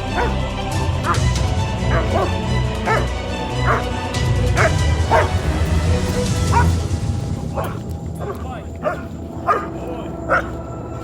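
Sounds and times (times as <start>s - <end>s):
background music with low bass: 0.0s - 11.0s
dog barking sharply: 0.1s - 0.4s, 1.9s - 3.1s, 3.7s - 4.0s, 4.6s - 5.4s, 7.6s - 9.7s, 10.3s - 10.5s.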